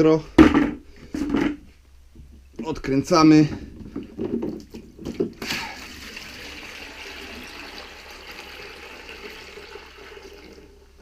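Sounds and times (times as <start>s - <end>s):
handling knocks: 0.4s - 1.6s
water pouring into a bucket: 5.4s - 11.0s.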